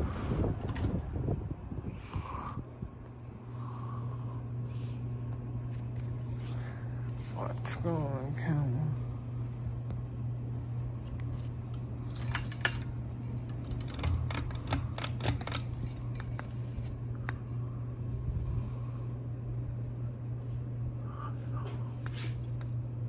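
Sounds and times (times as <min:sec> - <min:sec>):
ceiling fans humming: 0:00.0 - 0:23.0
sharp metallic clicks and rattles: 0:11.4 - 0:17.5.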